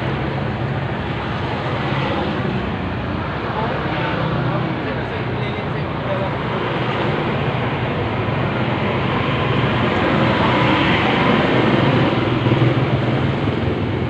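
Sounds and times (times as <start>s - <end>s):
road noise rushing: 0.0s - 14.0s.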